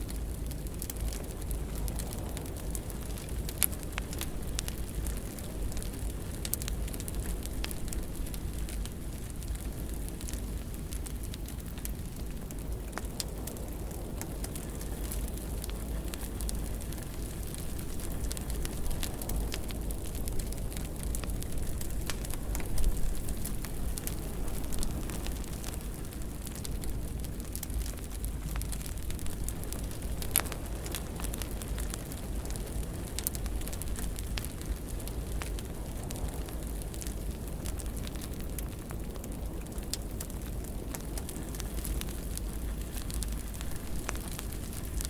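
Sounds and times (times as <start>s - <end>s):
wood fire crackling and popping: 0.0s - 45.0s.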